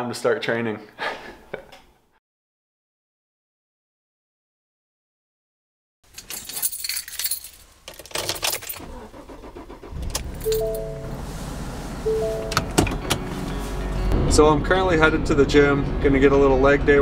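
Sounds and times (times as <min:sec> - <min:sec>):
car keys jangling: 0:06.1 - 0:11.5, 0:12.1 - 0:13.6
car engine starting and idling: 0:07.8 - 0:16.8
two-note electronic chime: 0:10.5 - 0:11.1, 0:12.0 - 0:12.8.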